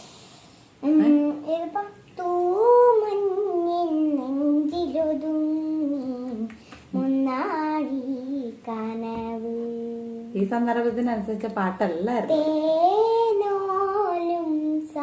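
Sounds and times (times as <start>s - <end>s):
woman humming: 0.8s - 1.5s.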